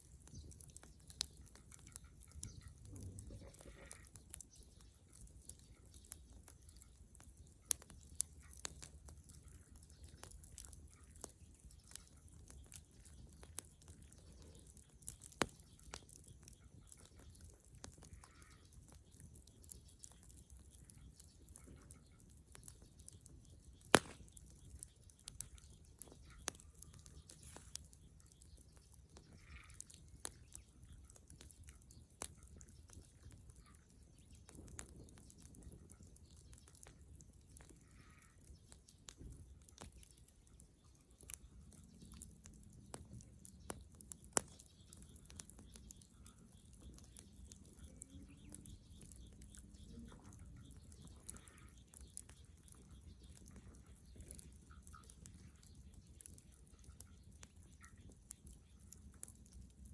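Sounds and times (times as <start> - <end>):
bonfire crackling: 0.0 - 59.9
sharp pops of fire: 5.9 - 20.4, 22.5 - 30.6, 41.2 - 56.5.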